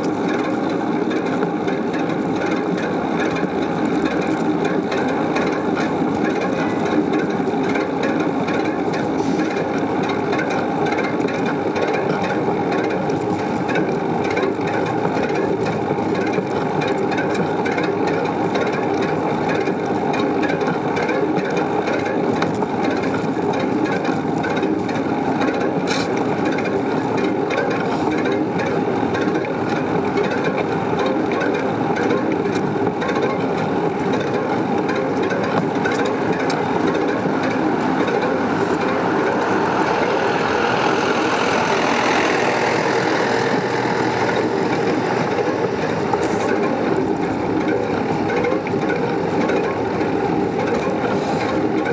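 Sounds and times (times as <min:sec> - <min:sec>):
bicycle rolling: 0:00.0 - 0:51.9.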